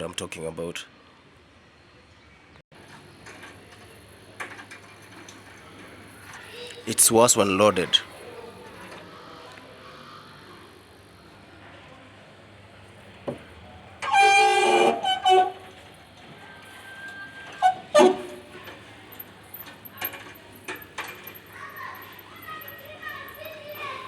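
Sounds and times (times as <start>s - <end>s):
loud horn-like tone: 14.0s - 15.8s, 17.0s - 18.6s
washer dryer spinning: 14.0s - 24.0s.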